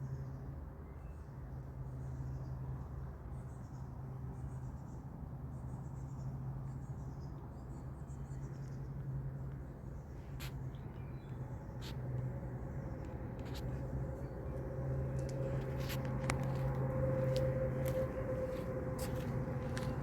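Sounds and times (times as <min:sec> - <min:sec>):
steady low hum: 0:08.5 - 0:20.0.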